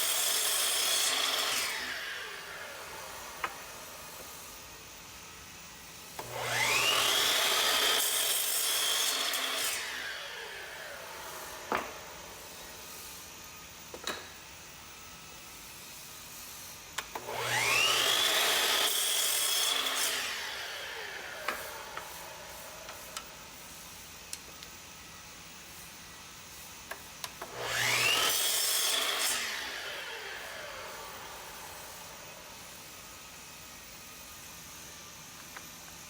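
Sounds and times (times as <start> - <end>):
power tool motor whining: 6.2 - 12.8, 17.1 - 23.2, 27.4 - 32.8.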